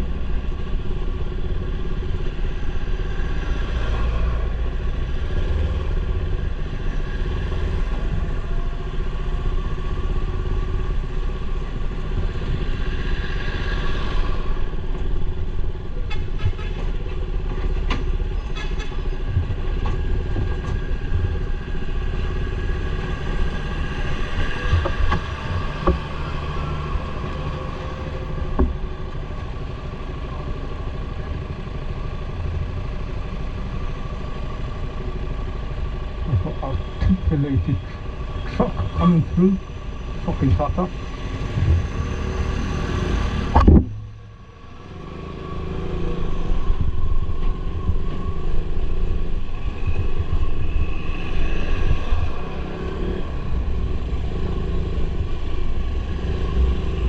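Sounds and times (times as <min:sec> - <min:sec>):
sharp clicks and knocks: 0:24.7 - 0:26.1, 0:43.4 - 0:44.4.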